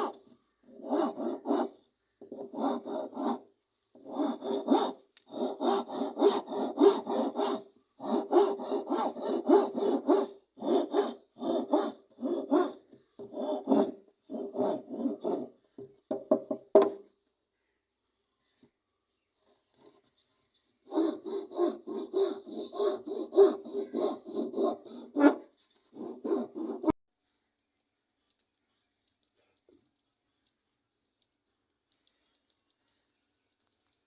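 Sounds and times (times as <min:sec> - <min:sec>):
hand tool strokes on wood: 0:04.0 - 0:15.5, 0:20.9 - 0:27.0.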